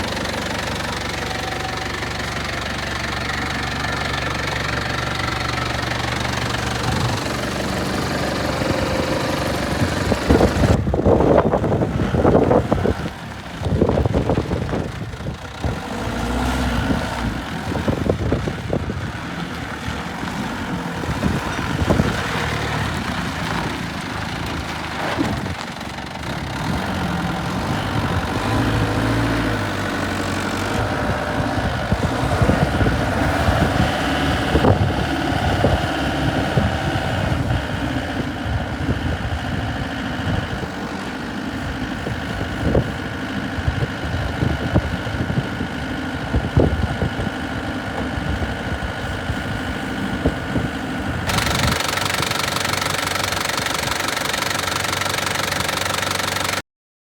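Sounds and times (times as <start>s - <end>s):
forklift engine idling: 0.0s - 56.6s.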